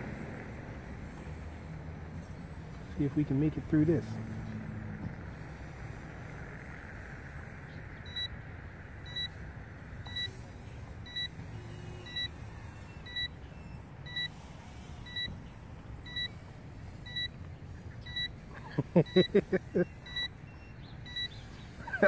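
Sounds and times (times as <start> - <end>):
electronic buzzer beeping: 7.9 - 8.3, 9.0 - 9.4, 10.0 - 17.4, 18.0 - 21.6.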